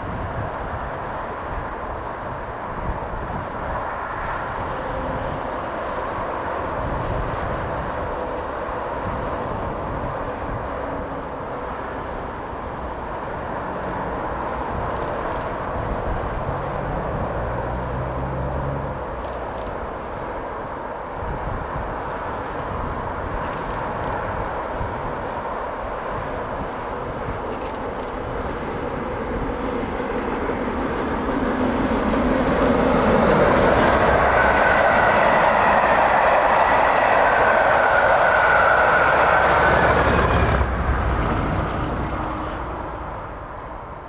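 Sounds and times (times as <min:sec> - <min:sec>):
steam train rumbling: 0:22.7 - 0:44.0.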